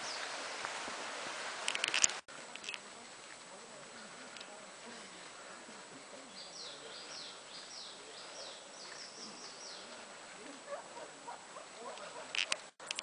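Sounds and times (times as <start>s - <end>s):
background hiss: 0.0s - 13.0s
small bird singing: 6.3s - 9.9s.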